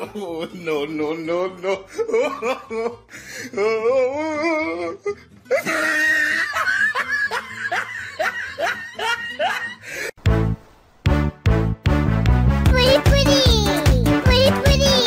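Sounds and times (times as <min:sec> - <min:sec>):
person laughing: 0:00.0 - 0:03.0, 0:03.6 - 0:10.1.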